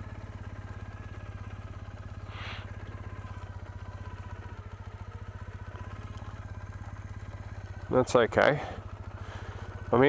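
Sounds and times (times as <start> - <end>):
motorcycle engine idling: 0.0 - 10.0
brief hiss: 2.3 - 2.7.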